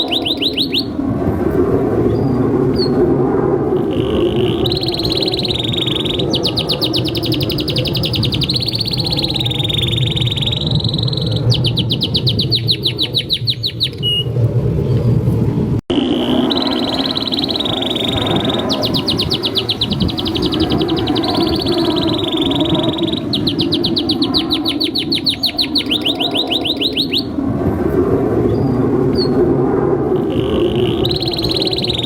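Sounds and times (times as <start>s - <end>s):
canary singing trills: 0.0s - 1.0s, 3.8s - 14.3s, 15.9s - 27.4s, 30.2s - 32.0s.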